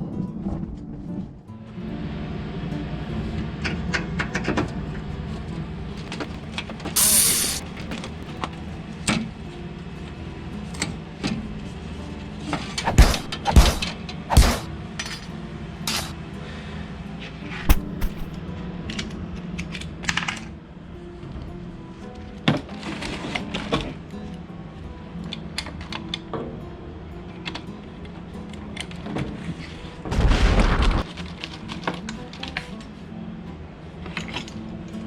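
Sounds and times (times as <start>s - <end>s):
brief hiss: 6.0s - 8.4s, 17.6s - 18.4s
heavy thumps: 17.6s - 18.4s.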